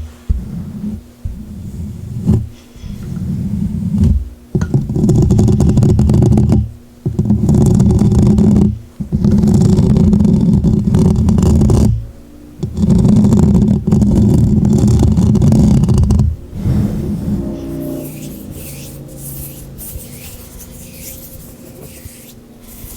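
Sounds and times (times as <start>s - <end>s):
oiled gloved hands rubbing: 12.7s - 22.9s.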